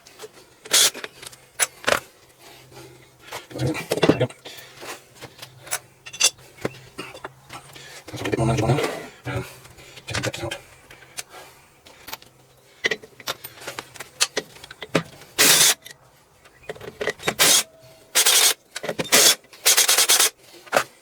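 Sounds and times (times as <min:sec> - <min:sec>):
power tool bursts: 0:00.7 - 0:00.9, 0:15.4 - 0:15.8, 0:17.3 - 0:20.4
small metal clicks and knocks: 0:11.9 - 0:15.2.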